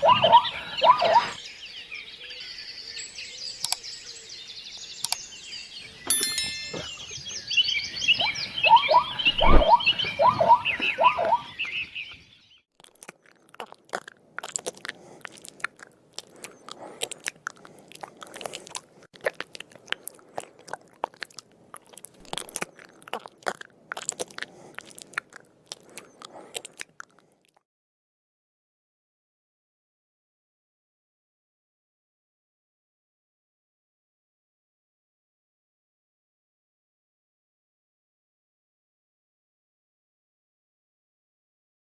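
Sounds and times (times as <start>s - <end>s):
repeated pitched animal calls: 0.0s - 1.4s, 7.9s - 12.2s
animal crunching and chewing: 12.8s - 27.6s.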